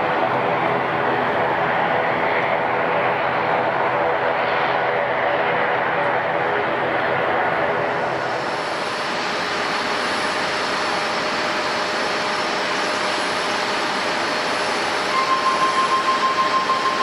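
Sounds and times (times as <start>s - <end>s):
jet engines rushing: 0.0s - 17.0s
faint high whine: 13.8s - 17.0s.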